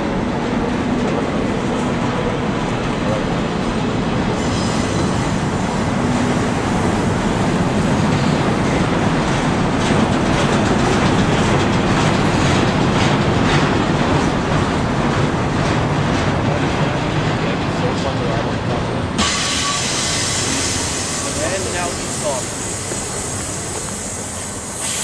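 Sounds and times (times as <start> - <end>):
freight train wheels rumbling: 0.0 - 25.0.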